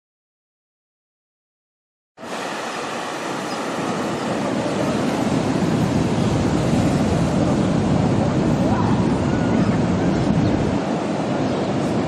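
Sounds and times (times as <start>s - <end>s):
surf rushing on beach: 2.2s - 12.0s.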